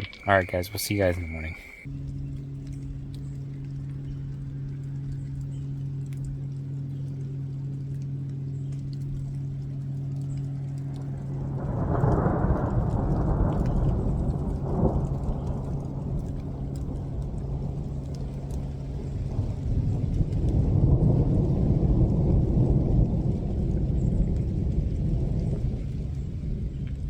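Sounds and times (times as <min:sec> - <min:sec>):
thunder rumbling: 0:00.0 - 0:01.9, 0:10.5 - 0:27.0
steady low hum: 0:00.0 - 0:27.0.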